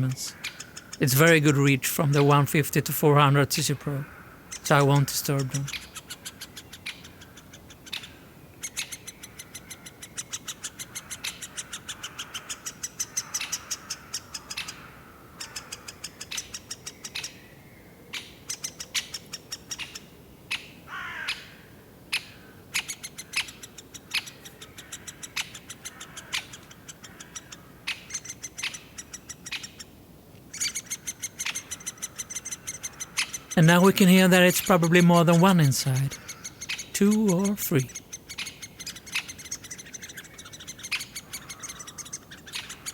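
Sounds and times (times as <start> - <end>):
woodpecker chicks begging calls: 0.0 - 42.9
lower falling bird call: 33.1 - 42.9.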